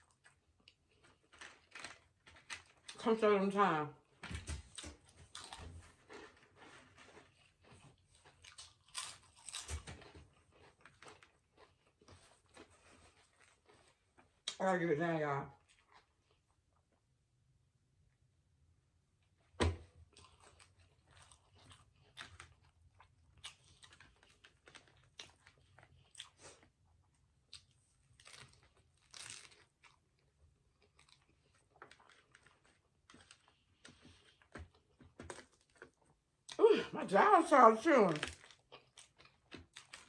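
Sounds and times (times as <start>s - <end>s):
person chewing food: 0.0s - 3.0s, 4.6s - 14.6s, 20.0s - 36.6s, 38.3s - 40.0s.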